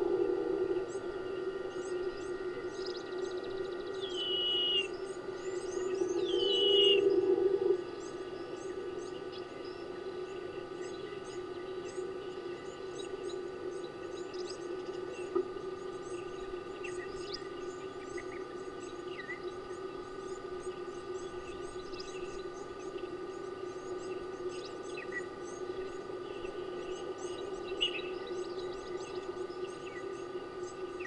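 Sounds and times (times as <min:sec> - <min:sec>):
lower whistled bird calls: 0:00.0 - 0:09.8
steady electrical hum: 0:00.0 - 0:31.0.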